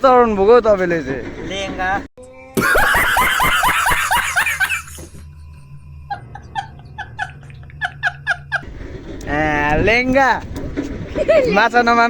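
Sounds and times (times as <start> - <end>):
person laughing: 2.6 - 5.2, 6.1 - 8.6.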